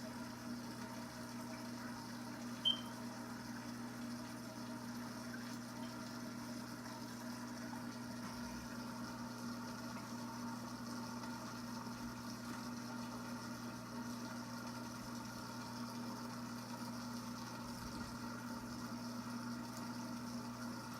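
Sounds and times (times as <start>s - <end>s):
aquarium pump humming: 0.0s - 20.9s
running water: 0.1s - 20.9s
short high-pitched blip: 2.6s - 2.9s.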